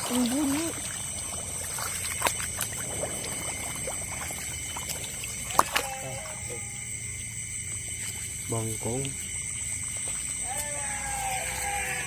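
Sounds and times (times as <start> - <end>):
water splashing around wading legs: 0.0 - 6.5
night insects chorus: 0.0 - 12.0.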